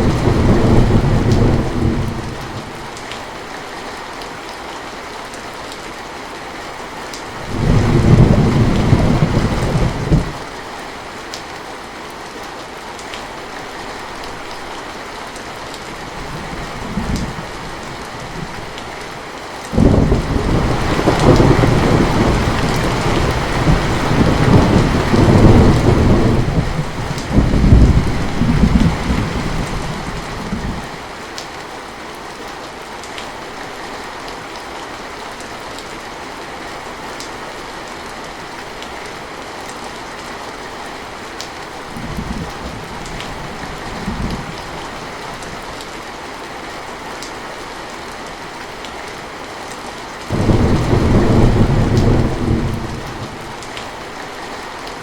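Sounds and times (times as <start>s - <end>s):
thunder rumbling: 0.0s - 2.7s, 7.4s - 10.4s, 19.8s - 30.9s, 50.3s - 53.8s
heavy rain: 0.0s - 55.0s.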